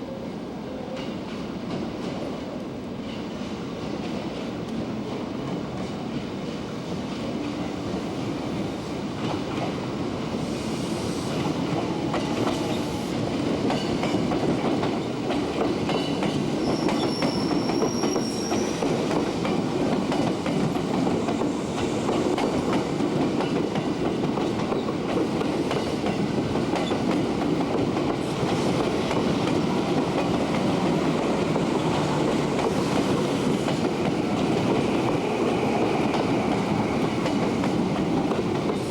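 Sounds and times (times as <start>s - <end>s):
train wheels clattering over rail joints: 13.6s - 38.9s
faint high squeal: 16.6s - 18.8s.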